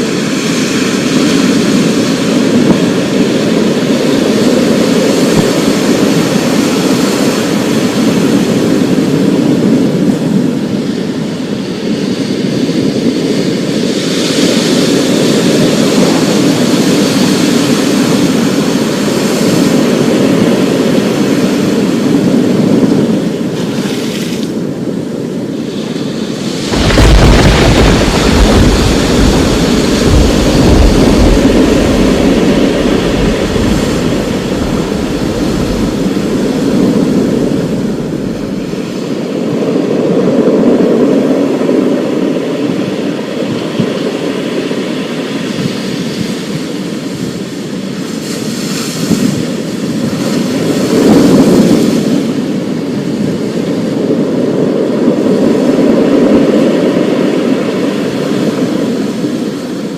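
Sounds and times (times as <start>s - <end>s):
rolling thunder rumbling: 26.1s - 41.9s
sharp thunder clap: 26.7s - 38.8s.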